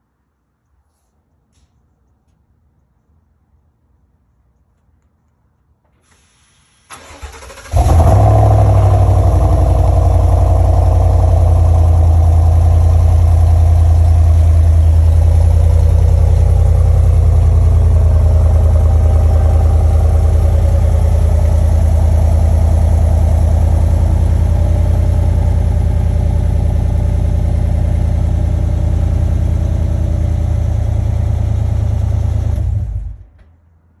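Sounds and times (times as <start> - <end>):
car engine idling loud: 7.7 - 33.3.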